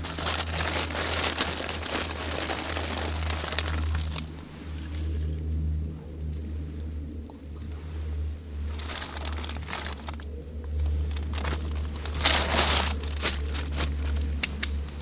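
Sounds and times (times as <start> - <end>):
crinkling and rustling: 0.0 - 5.5, 8.6 - 15.0
steady low hum: 0.0 - 15.0.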